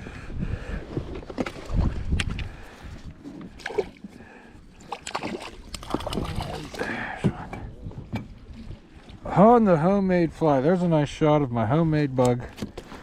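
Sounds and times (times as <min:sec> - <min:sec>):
water sloshing and splashing: 0:01.2 - 0:09.6
light knocks against boat: 0:07.2 - 0:08.4.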